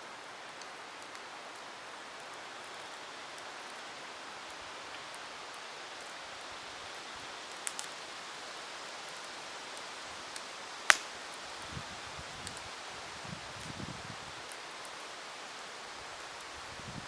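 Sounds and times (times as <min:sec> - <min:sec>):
campfire hissing and crackling: 0:00.0 - 0:17.0
fire loud pop: 0:10.9 - 0:11.2.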